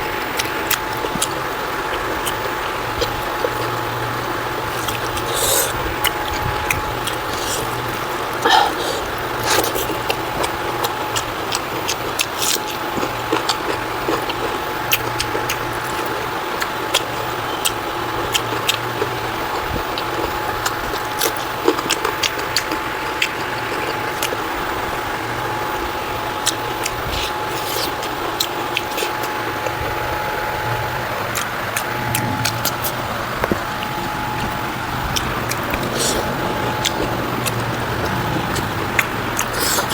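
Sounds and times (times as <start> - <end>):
background hum: 0.0 - 39.9
chewing clicks and smacks: 0.3 - 25.0, 26.2 - 30.1, 31.3 - 39.9.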